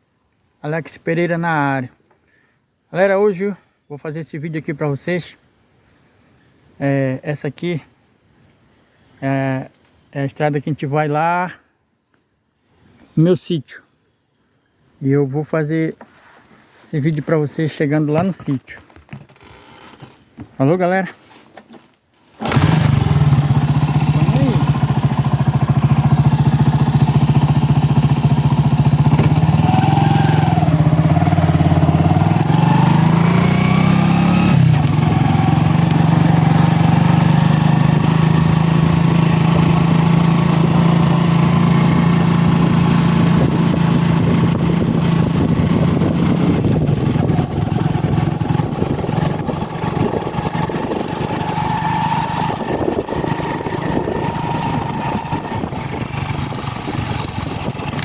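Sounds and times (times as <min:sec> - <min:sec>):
vehicle engine running: 0:22.4 - 0:58.0.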